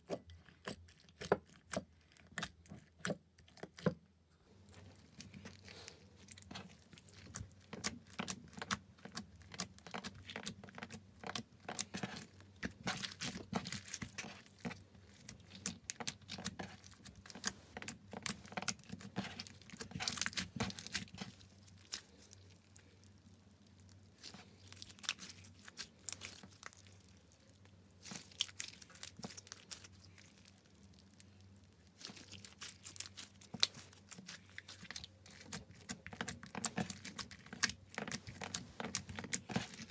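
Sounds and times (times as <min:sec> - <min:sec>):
sticky slime clicks and crackles: 0:05.1 - 0:39.9.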